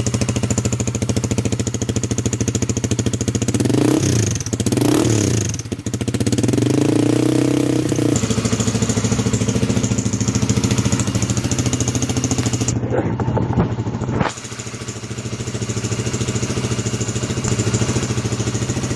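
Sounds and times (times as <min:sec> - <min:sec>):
motorcycle engine idling: 0:00.0 - 0:18.9.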